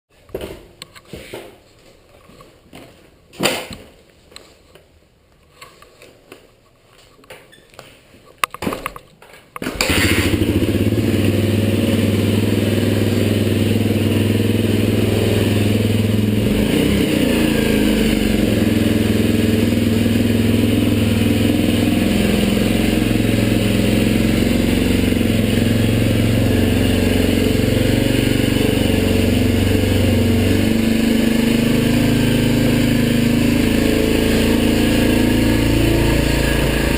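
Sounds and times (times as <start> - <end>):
motorcycle engine idling: 9.9 - 16.4.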